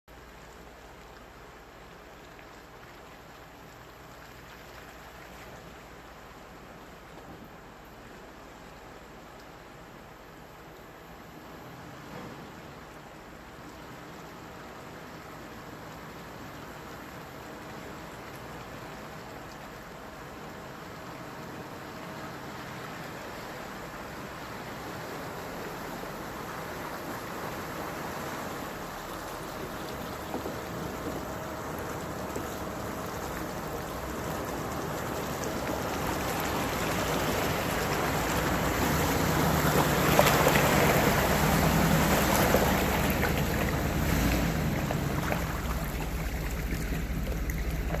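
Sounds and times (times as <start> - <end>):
rushing water: 0.1 - 48.0
vehicle engine hum: 0.1 - 48.0
water splashing: 24.1 - 48.0.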